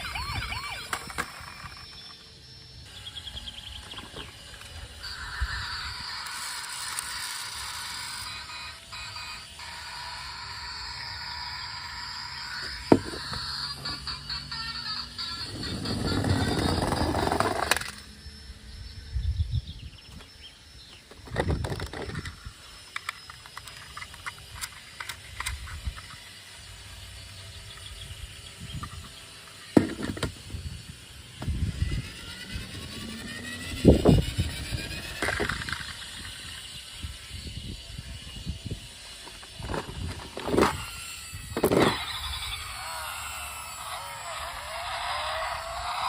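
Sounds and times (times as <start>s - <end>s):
toy cars knocking and clicking: 0.0s - 2.4s, 3.8s - 18.2s, 21.0s - 26.3s, 28.7s - 30.4s, 32.5s - 37.1s, 39.1s - 46.0s
rising whine: 0.0s - 46.0s.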